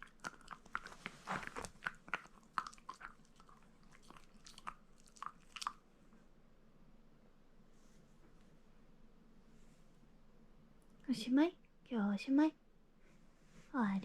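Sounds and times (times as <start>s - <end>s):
dog crunching and chewing: 0.0s - 5.8s.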